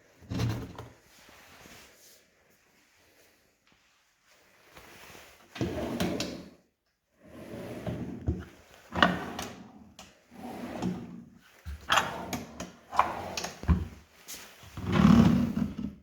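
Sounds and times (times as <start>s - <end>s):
object sliding and knocking: 10.4s - 13.9s.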